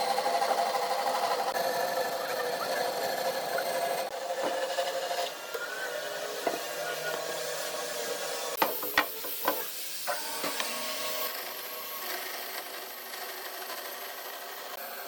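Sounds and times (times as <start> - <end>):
sharp wooden knocks: 8.6 - 9.6.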